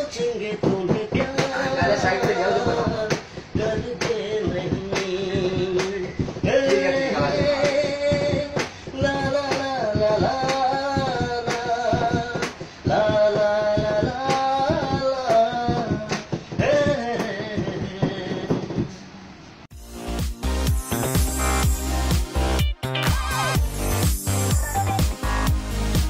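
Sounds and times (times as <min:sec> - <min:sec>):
man singing: 0:00.0 - 0:19.0
percussion beat: 0:00.0 - 0:26.0.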